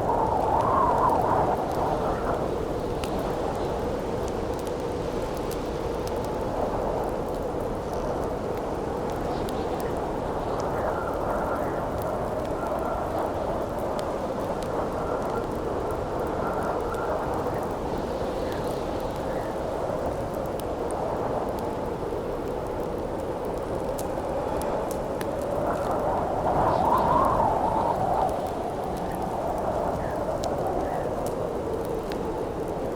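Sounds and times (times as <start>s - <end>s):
campfire crackling: 0.0s - 32.9s
wind howling: 22.9s - 32.9s.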